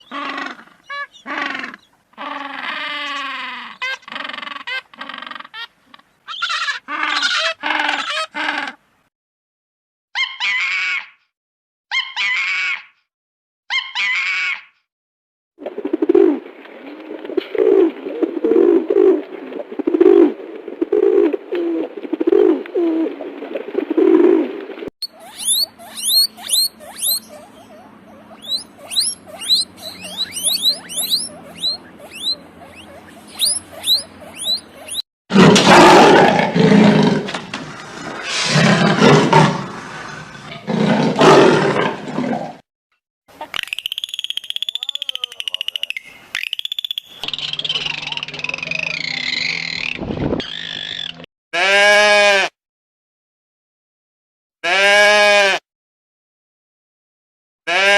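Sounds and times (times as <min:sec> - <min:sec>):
high-pitched animal chirps: 0:00.0 - 0:08.5, 0:13.7 - 0:14.5, 0:25.0 - 0:35.0, 0:43.4 - 0:51.2
loud drawn-out animal calls: 0:00.0 - 0:08.8, 0:25.0 - 0:37.4, 0:47.4 - 0:52.5, 0:57.7 - 0:57.9
low animal calls: 0:25.0 - 0:35.0.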